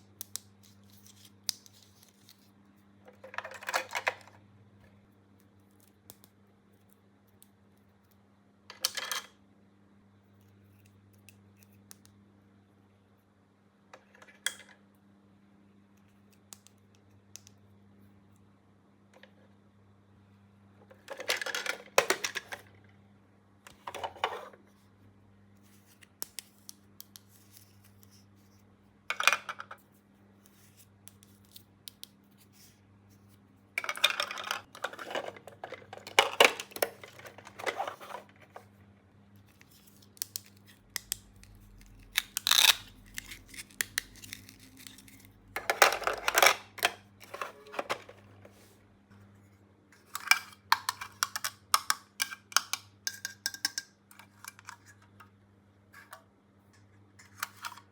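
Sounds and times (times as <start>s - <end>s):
faint steady hum: 0.0s - 57.9s
packaging cutting tearing and rustling: 41.4s - 45.4s.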